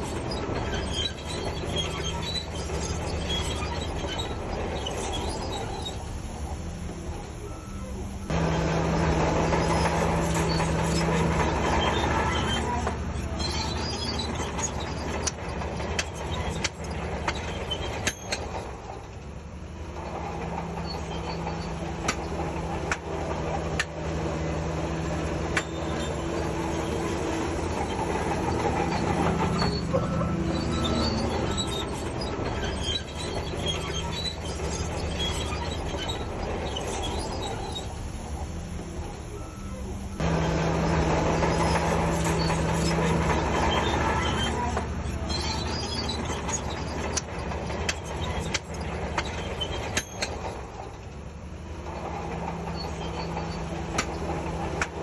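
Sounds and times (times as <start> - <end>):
bulldozer diesel engine working: 0.0 - 55.0
steel tracks clanking and squealing: 0.0 - 55.0.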